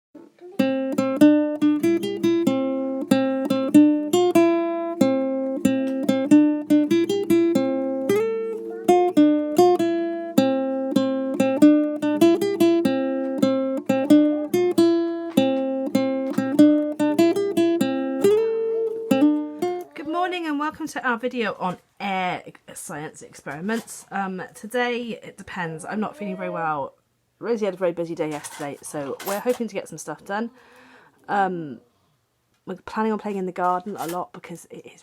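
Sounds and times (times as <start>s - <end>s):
acoustic guitar tune: 0.2s - 20.8s.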